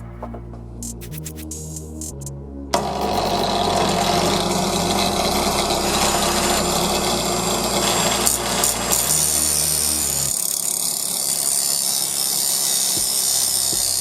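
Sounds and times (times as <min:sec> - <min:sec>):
thin high whine: 0:02.8 - 0:12.8
power tool grinding steel: 0:02.8 - 0:14.0.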